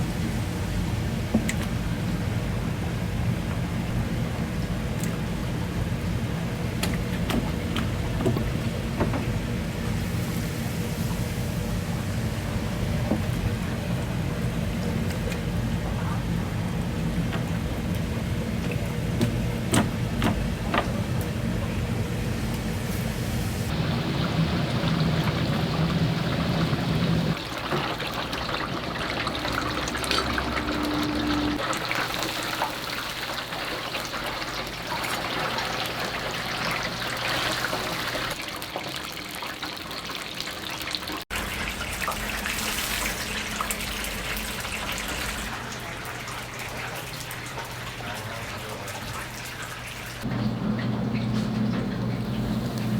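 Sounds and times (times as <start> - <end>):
chicken deep-frying in oil: 0.0 - 52.9
low steady hum: 23.7 - 31.7.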